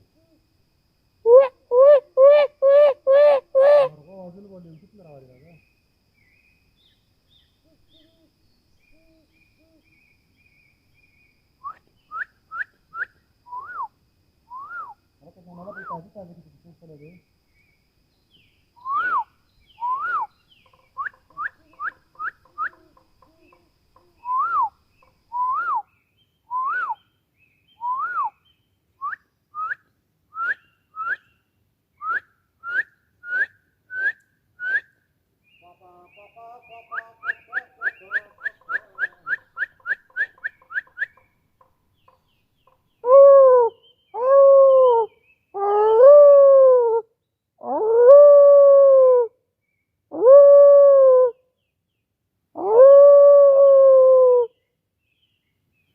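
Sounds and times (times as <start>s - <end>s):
bird whistling calls: 18.8s - 20.3s, 24.2s - 24.7s, 27.7s - 28.4s, 32.0s - 34.9s, 36.8s - 41.2s.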